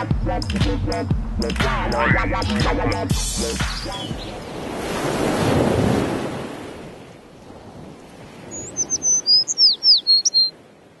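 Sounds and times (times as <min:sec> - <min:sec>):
small bird chirping: 0:08.5 - 0:10.5.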